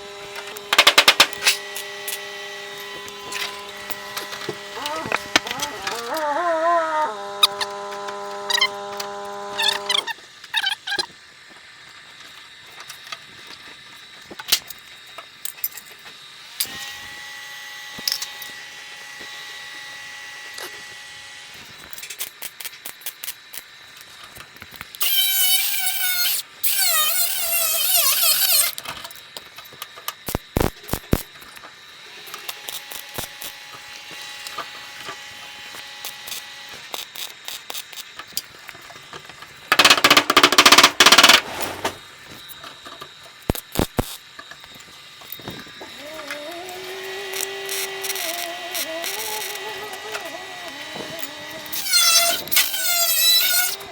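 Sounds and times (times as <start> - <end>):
steady machine whine: 0.0 - 10.2, 39.7 - 43.0
power tool squealing whine: 0.0 - 11.0, 25.0 - 28.8, 39.7 - 42.4, 45.2 - 53.9
clicks and metal knocks: 0.4 - 1.6, 39.7 - 42.0
loud burst of noise: 39.7 - 42.2.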